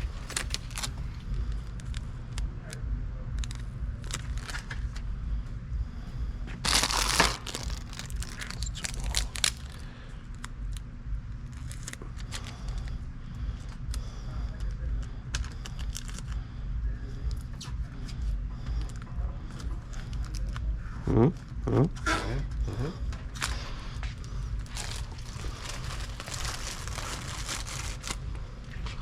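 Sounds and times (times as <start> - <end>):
packaging tearing and crinkling: 0.0 - 1.1, 3.4 - 5.0, 6.6 - 10.4, 11.4 - 12.5, 15.4 - 16.3, 24.6 - 28.4
steady low hum: 0.0 - 29.0.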